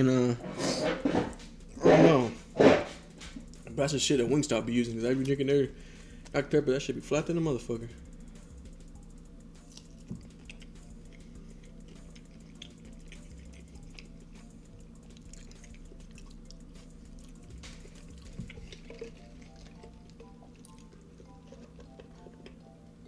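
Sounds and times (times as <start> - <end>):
faint background music: 0.0 - 23.0
chewing with wet clicks: 3.4 - 3.6, 8.6 - 23.0.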